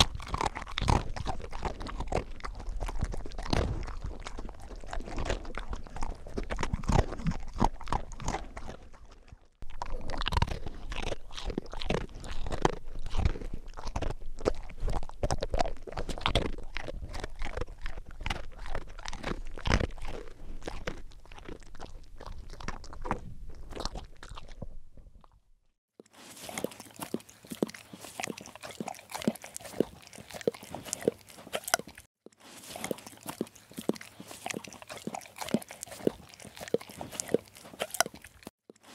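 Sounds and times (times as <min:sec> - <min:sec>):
puppy chewing: 0:00.0 - 0:25.4, 0:26.0 - 0:38.9.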